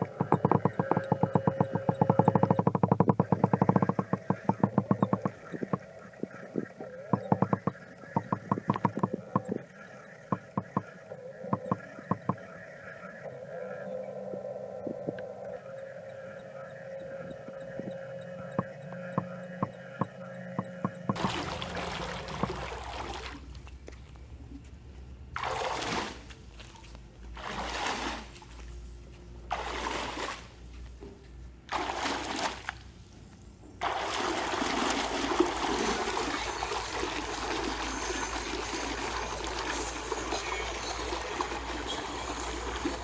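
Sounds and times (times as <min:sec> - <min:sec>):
steady hum: 0:00.0 - 0:43.0
water pouring and splashing: 0:21.2 - 0:24.0, 0:25.4 - 0:28.6, 0:29.5 - 0:30.5, 0:31.7 - 0:32.9, 0:33.8 - 0:43.0.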